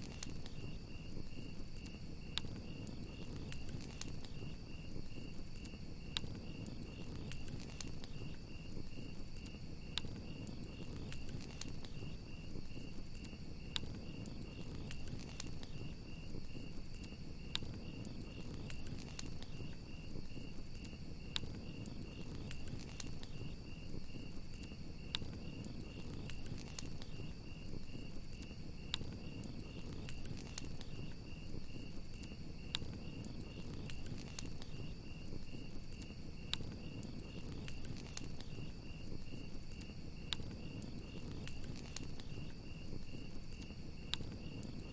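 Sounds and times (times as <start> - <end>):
campfire crackling and popping: 0.0 - 44.9
crickets chirping: 0.0 - 44.9.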